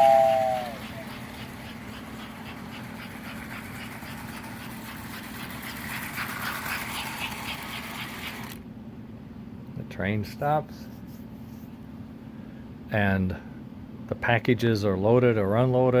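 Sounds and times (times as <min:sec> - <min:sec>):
model train motor hum: 0:00.0 - 0:08.6.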